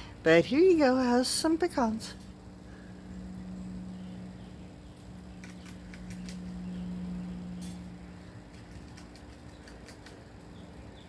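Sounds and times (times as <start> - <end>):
steady low hum: 0.0 - 11.0
bird bills pecking nuts: 4.8 - 11.0.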